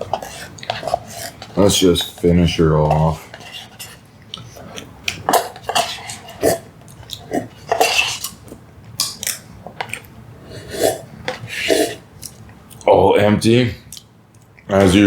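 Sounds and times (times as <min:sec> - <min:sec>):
spoon scraping inside cup: 0:00.0 - 0:02.2, 0:02.8 - 0:04.0, 0:05.3 - 0:06.6, 0:07.6 - 0:08.4, 0:10.6 - 0:12.0.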